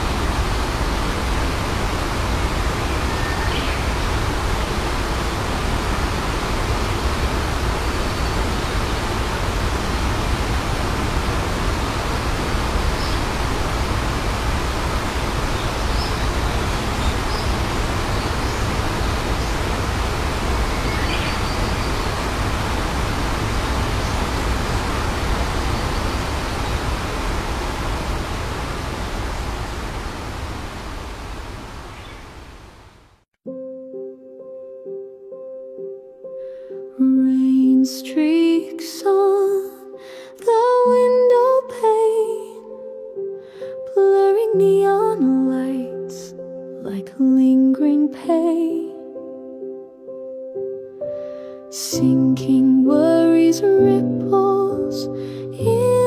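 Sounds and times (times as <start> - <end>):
waterfall rushing: 0.0 - 33.2.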